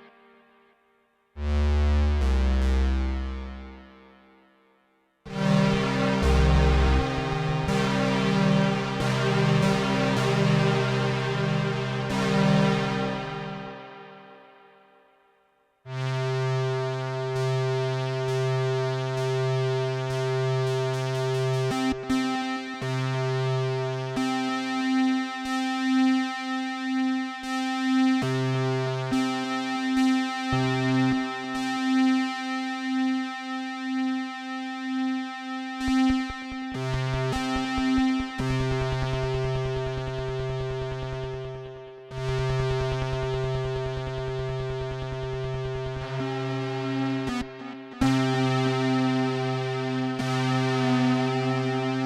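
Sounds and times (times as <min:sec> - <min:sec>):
buzzy synthesizer notes: 0:01.4 - 0:04.0, 0:05.3 - 0:14.4, 0:35.8 - 0:52.0
low synth bass note: 0:05.3 - 0:13.6.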